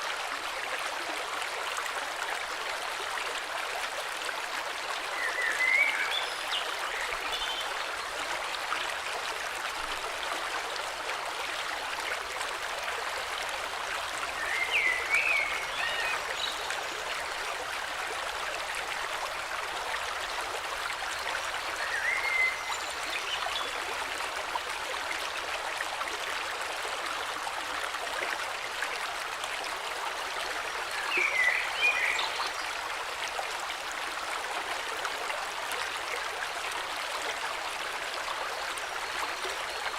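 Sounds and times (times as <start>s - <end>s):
stream rushing: 0.6s - 39.9s.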